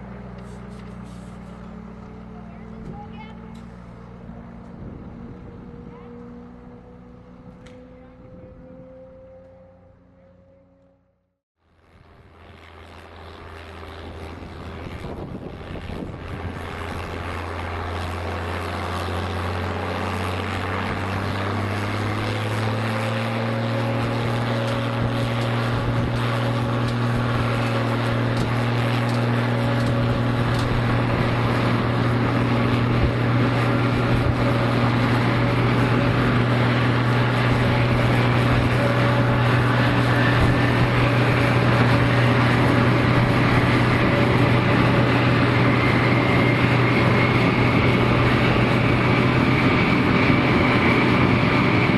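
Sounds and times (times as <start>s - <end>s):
jet engine spooling up: 11.8s - 51.9s.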